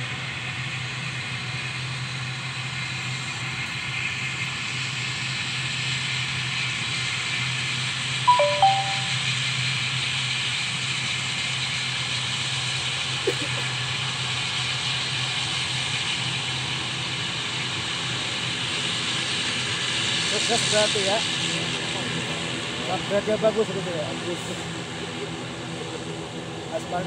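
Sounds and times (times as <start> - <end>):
brief stepped tone: 8.3 - 9.2.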